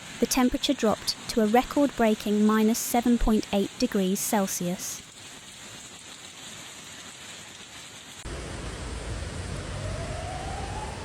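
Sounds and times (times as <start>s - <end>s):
rain: 0.0s - 11.0s
heavy rain and storm: 5.9s - 11.0s
faint rising tone: 8.3s - 11.0s.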